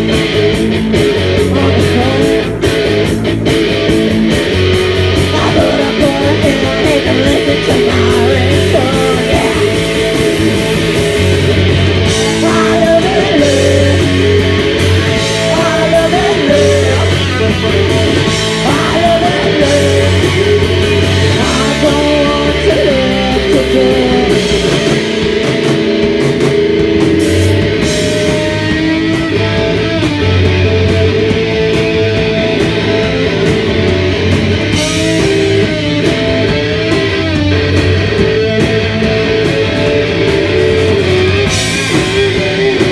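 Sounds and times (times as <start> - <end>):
rock band playing live: 0.0 - 42.9
person singing: 1.4 - 2.6, 5.3 - 10.0, 12.0 - 25.0.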